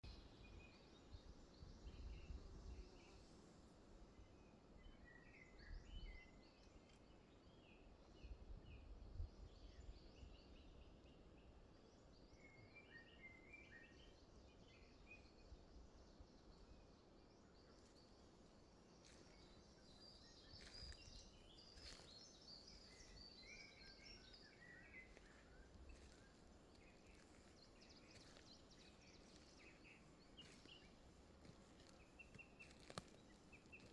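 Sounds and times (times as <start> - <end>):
songbirds chirping: 0.0 - 33.9
steady low hiss: 13.2 - 33.9.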